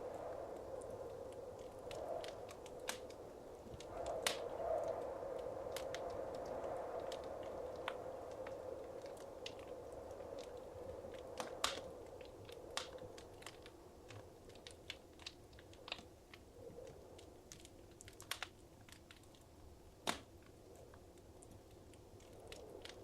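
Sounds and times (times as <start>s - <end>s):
low steady hiss: 0.0s - 23.0s
wood fire crackling: 0.0s - 23.0s
sharp pops and snaps: 0.6s - 5.0s, 5.7s - 16.4s, 17.4s - 23.0s.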